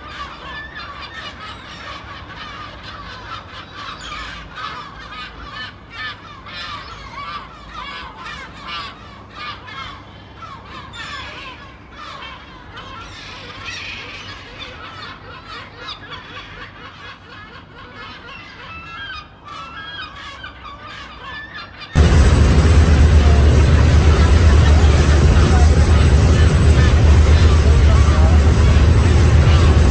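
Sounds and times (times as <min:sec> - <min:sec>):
seagulls calling: 0:12.0 - 0:29.9.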